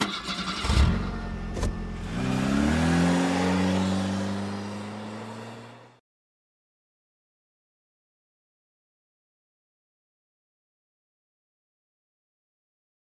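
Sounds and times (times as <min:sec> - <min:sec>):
car engine running: 0:00.0 - 0:06.0.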